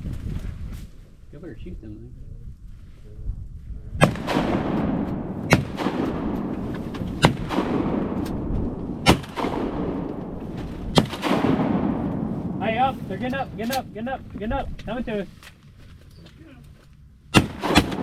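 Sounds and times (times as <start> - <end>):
shotgun blasts: 4.0 - 14.3, 17.3 - 18.0
steady rushing noise: 4.4 - 15.4.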